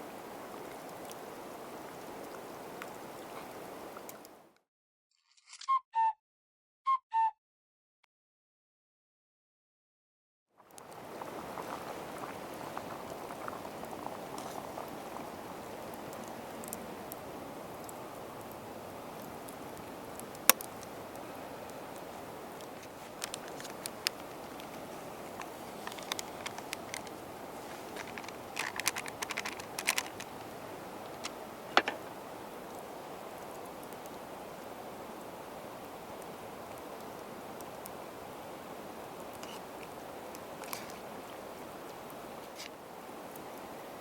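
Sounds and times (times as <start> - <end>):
liquid boiling in a pot: 0.0 - 4.2, 10.6 - 42.2
steady low hiss: 0.0 - 4.5, 10.7 - 44.0.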